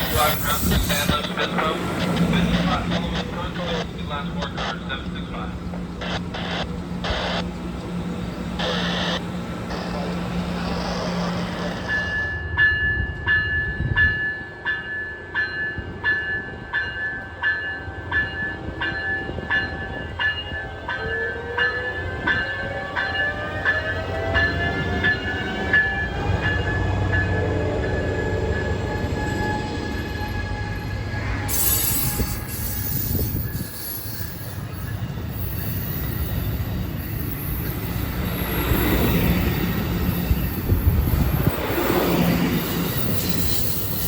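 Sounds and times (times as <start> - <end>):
railroad crossing bell ringing: 11.7 - 44.0.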